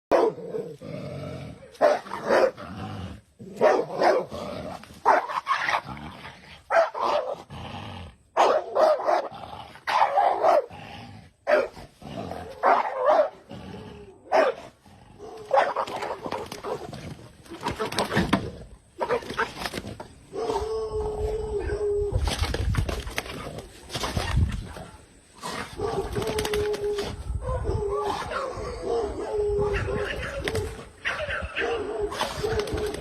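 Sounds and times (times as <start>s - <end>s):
dog barking: 0.1s - 0.4s, 1.7s - 2.6s, 3.6s - 4.3s, 5.0s - 5.4s, 6.7s - 7.4s, 8.4s - 9.3s, 9.9s - 10.7s, 11.5s - 11.8s, 12.6s - 13.4s, 14.3s - 16.2s, 19.0s - 19.4s, 27.4s - 30.4s, 31.0s - 32.6s.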